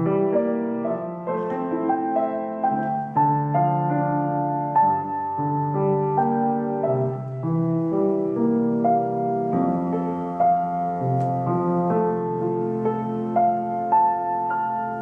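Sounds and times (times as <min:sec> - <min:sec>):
slow keyboard music: 0:00.0 - 0:15.0.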